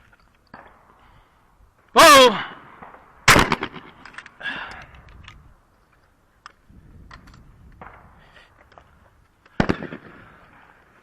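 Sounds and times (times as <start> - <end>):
shotgun shot echoing: 2.8 - 4.0, 9.6 - 10.3.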